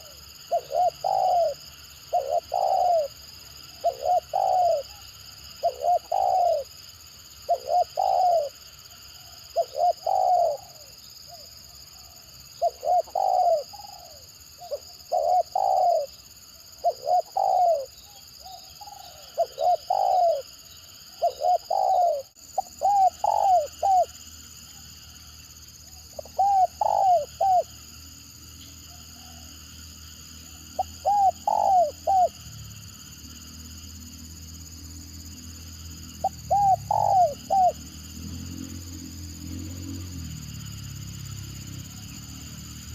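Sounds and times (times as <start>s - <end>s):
dove cooing: 0.0s - 6.8s, 7.4s - 8.6s, 9.2s - 11.5s, 12.6s - 24.2s, 26.1s - 27.7s, 30.8s - 32.4s, 36.2s - 37.8s.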